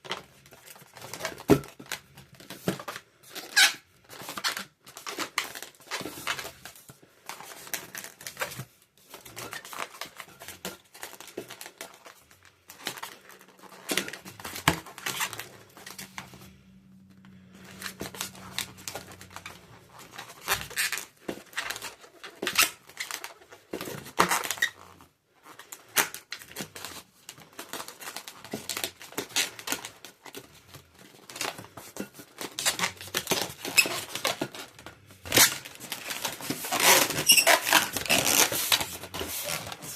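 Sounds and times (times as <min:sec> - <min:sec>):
rubber balloons squeaking and rubbing: 0:03.2 - 0:06.6, 0:12.8 - 0:16.6, 0:17.4 - 0:25.1, 0:31.3 - 0:39.9.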